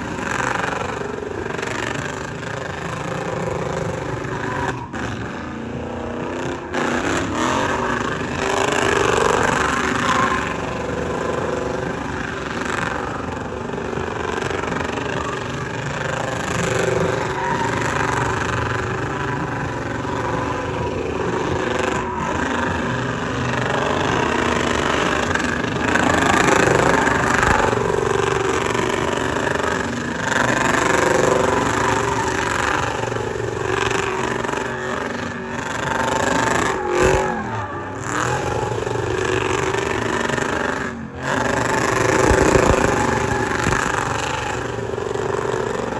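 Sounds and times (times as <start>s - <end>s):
vehicle engines revving: 0.0s - 45.9s.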